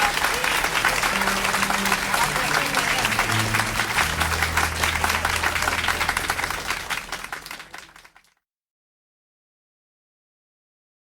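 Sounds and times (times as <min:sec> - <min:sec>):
audience applauding: 0:00.0 - 0:08.3
low held note: 0:01.1 - 0:07.5.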